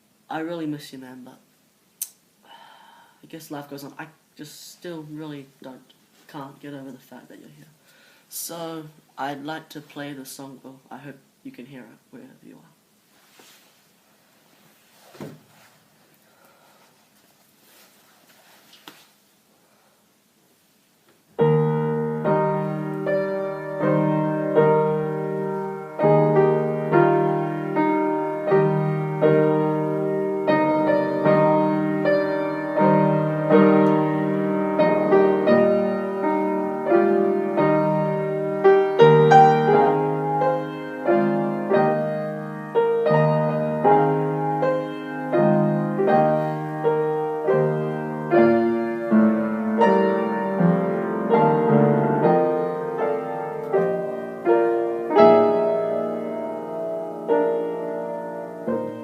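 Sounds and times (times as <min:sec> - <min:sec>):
gentle piano chords: 0:21.4 - 0:59.0.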